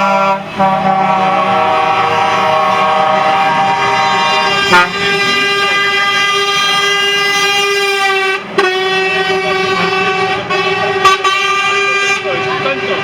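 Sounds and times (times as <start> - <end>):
truck air horn blast: 0.0 - 13.0.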